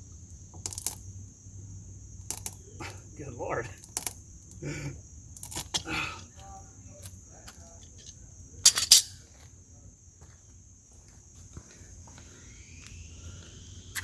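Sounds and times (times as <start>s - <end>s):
crickets chirring: 0.0s - 14.0s
faint rising whine: 12.1s - 14.0s.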